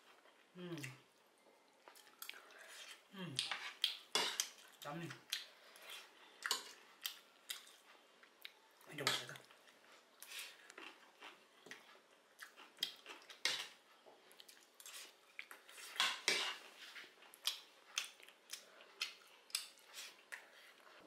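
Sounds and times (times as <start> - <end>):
chewing crunches and clicks: 10.7 - 13.6.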